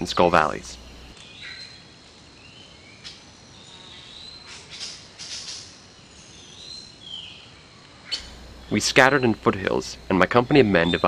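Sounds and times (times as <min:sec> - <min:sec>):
steady hiss: 0:00.0 - 0:01.2, 0:07.5 - 0:11.0
faint whistled bird calls: 0:02.4 - 0:11.0.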